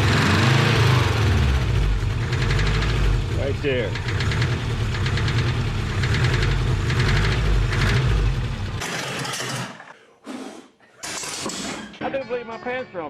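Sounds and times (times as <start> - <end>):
engine running with rhythmic knock: 0.0 - 8.8.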